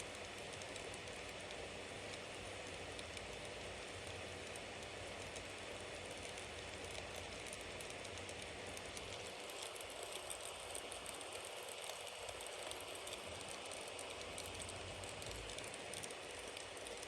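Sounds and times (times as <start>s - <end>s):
wood fire crackling: 4.8s - 17.0s.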